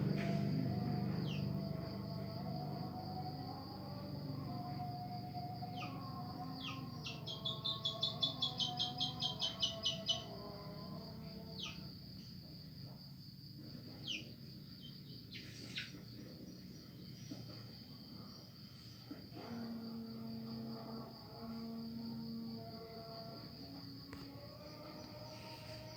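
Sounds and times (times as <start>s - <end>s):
insect trill: 0.0s - 25.9s
bird calling: 6.6s - 10.3s.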